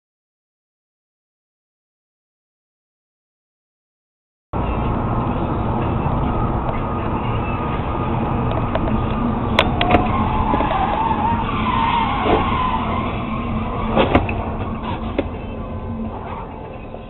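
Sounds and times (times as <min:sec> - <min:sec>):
tires screeching: 0:04.6 - 0:17.0
vehicle road noise: 0:04.6 - 0:17.0.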